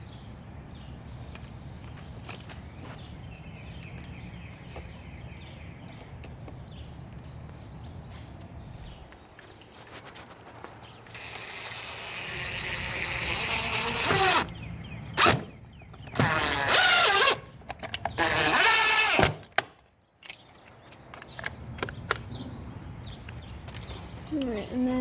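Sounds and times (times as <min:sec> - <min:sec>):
power drill running: 0:11.1 - 0:14.5, 0:15.1 - 0:17.5, 0:18.2 - 0:19.5.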